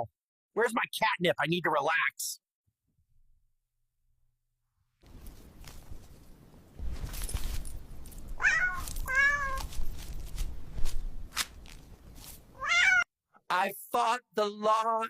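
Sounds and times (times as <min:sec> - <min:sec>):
cat meowing: 0:08.4 - 0:09.7, 0:12.6 - 0:13.1.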